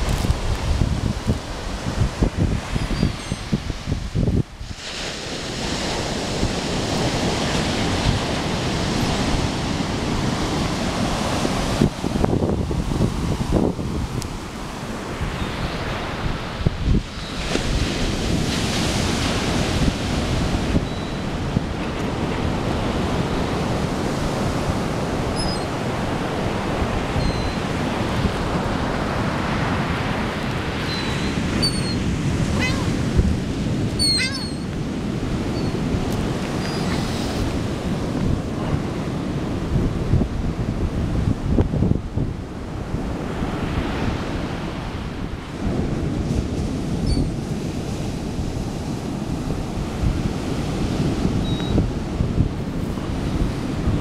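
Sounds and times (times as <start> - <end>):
ocean surf washing up beach: 0.0 - 54.0
wind on microphone: 0.0 - 54.0
high bird calls: 25.4 - 25.8, 27.2 - 27.6, 30.8 - 33.0, 33.9 - 34.7, 36.5 - 37.3.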